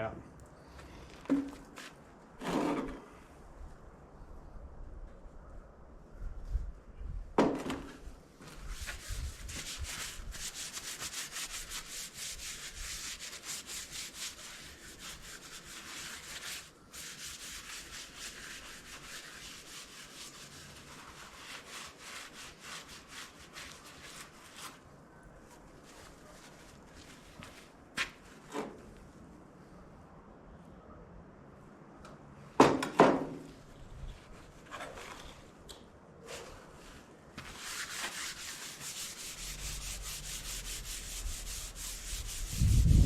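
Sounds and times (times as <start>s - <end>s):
hand scrubbing metal surface: 37.5s - 43.0s.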